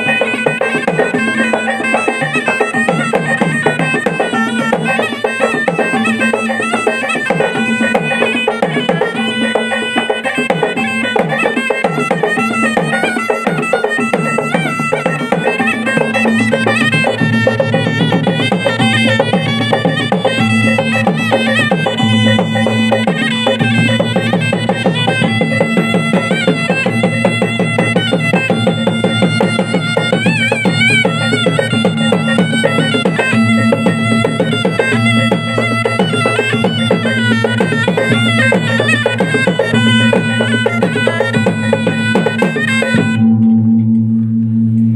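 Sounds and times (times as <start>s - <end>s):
fast drumming: 0.0s - 43.2s
shrill reed pipe melody: 0.0s - 44.9s
steady ringing tone: 43.0s - 44.9s
low drone: 43.1s - 44.9s.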